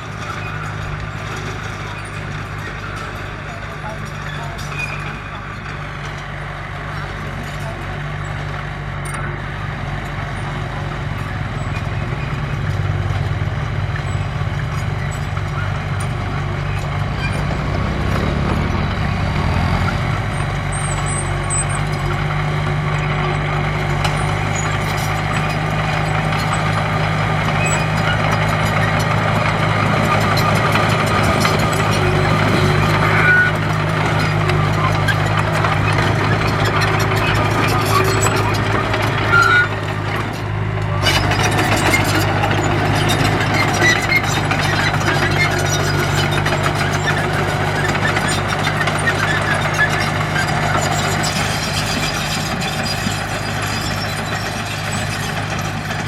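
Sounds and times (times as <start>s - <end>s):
earthmover diesel engine under load: 0.0s - 56.0s.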